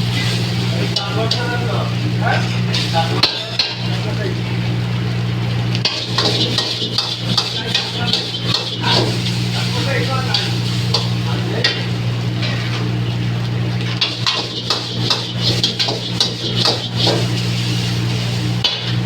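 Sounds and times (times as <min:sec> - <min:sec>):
light sizzle: 0:00.0 - 0:19.0
steady low hum: 0:00.0 - 0:19.0
metal spatula scraping in a wok: 0:05.8 - 0:11.2, 0:13.8 - 0:18.7.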